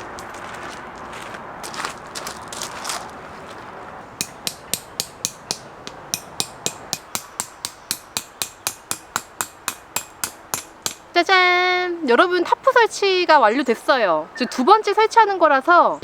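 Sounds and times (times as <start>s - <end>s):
peg hammered into ground: 4.2s - 11.3s.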